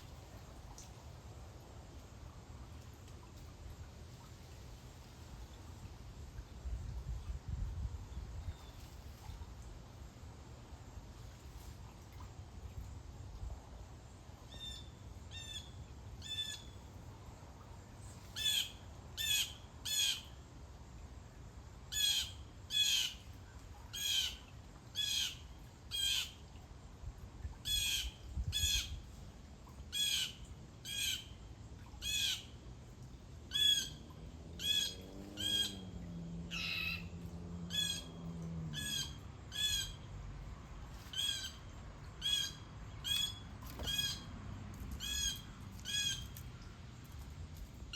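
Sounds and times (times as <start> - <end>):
bird squawking: 42.2 - 44.3.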